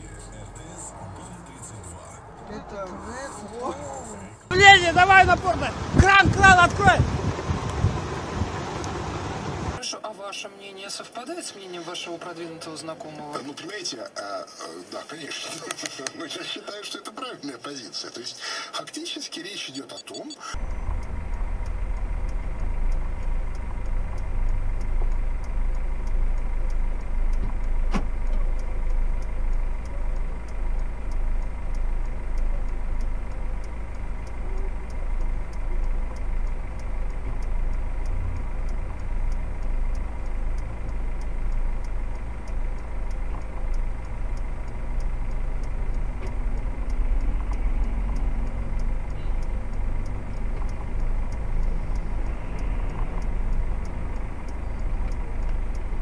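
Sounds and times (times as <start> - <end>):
car engine idling: 0.0 - 9.8, 20.5 - 56.0
faint regular ticking: 2.2 - 9.8, 20.0 - 56.0.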